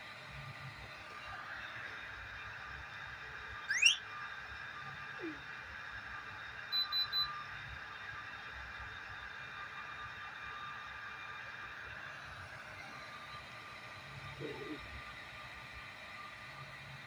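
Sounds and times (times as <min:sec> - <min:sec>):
rising chirp: 0:03.7 - 0:04.0
short high electronic beeps: 0:03.7 - 0:04.0.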